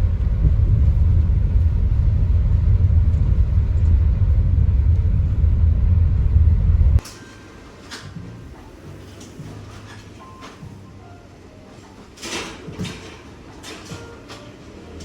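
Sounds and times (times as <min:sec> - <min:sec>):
loud low rumble: 0:00.0 - 0:07.0.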